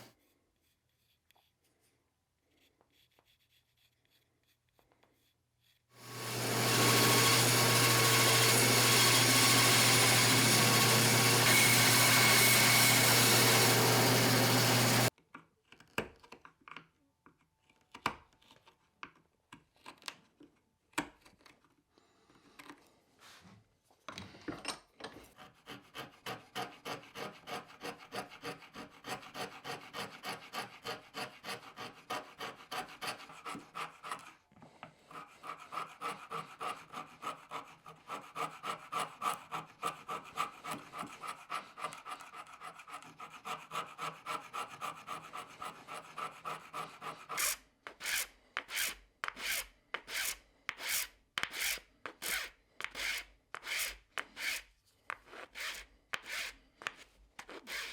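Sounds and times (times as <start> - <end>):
wood being hand-filed: 2.4 - 15.1, 25.2 - 57.9.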